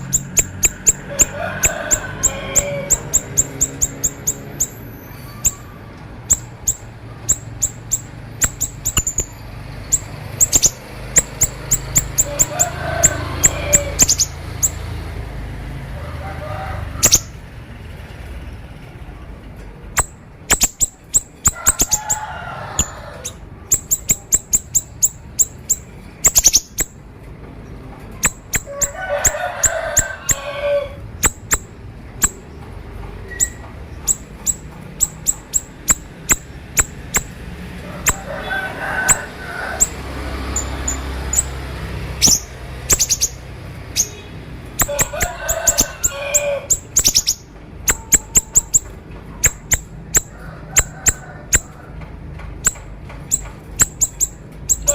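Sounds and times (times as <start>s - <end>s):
bird singing sharp chips: 0.0s - 12.7s, 13.4s - 14.8s, 20.0s - 22.2s, 22.8s - 27.0s, 28.2s - 29.0s, 31.2s - 32.6s, 33.2s - 37.4s, 42.2s - 50.9s, 52.6s - 54.9s.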